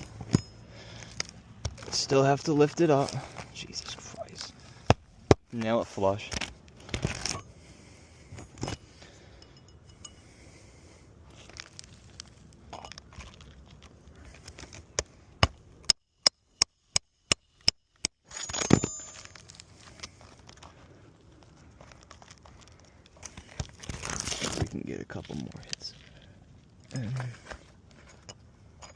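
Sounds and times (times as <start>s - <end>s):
shingle handling noise: 0.0s - 7.5s, 21.8s - 26.1s.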